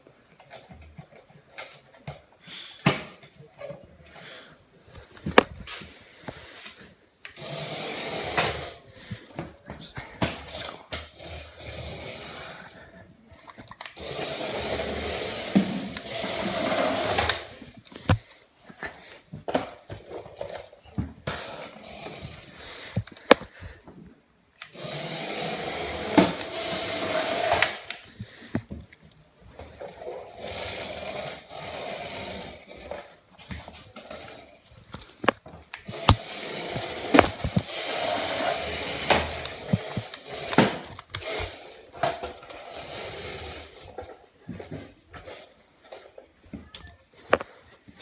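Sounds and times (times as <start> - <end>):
toy car wheels and motor whirring: 7.3 - 18.2, 24.6 - 28.8, 29.6 - 46.2
sharp clicks and knocks: 37.1 - 37.7.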